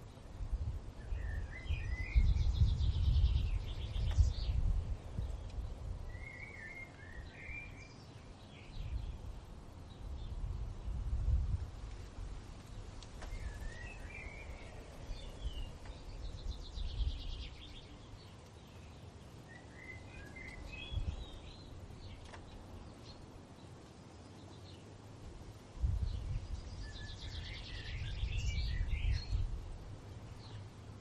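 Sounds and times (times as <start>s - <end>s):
low wind rumble: 0.0s - 31.0s
songbirds warbling: 1.0s - 10.4s, 12.6s - 25.1s, 25.9s - 30.8s.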